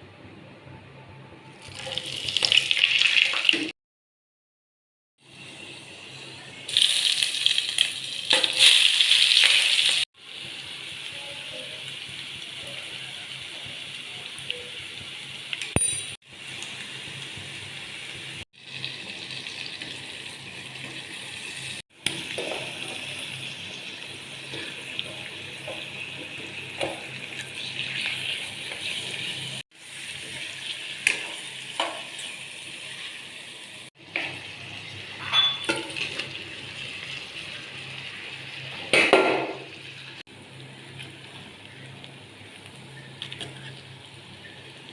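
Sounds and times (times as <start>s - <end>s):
food sizzling in oil: 1.6s - 3.7s, 5.2s - 44.9s
metal utensil clinks: 35.2s - 35.9s.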